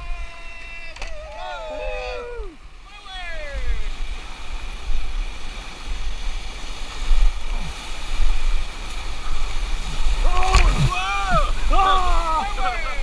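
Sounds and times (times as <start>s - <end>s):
river water rushing: 0.0s - 13.0s
wind rumble on microphone: 3.5s - 13.0s.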